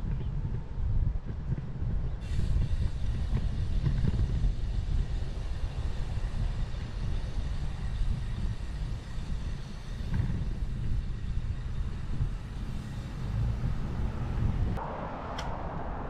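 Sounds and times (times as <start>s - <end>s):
wind rumbling on microphone: 0.0s - 16.0s
bicycle tyres hissing: 2.2s - 14.8s.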